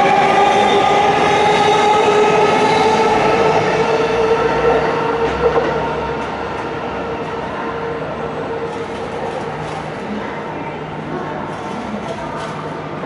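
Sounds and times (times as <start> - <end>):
electric train whine: 0.0 - 9.4.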